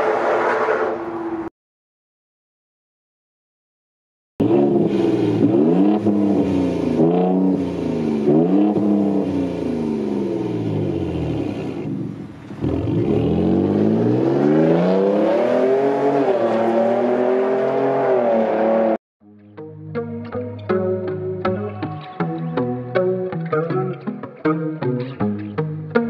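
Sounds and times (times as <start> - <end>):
truck engine revving: 4.4 - 19.0.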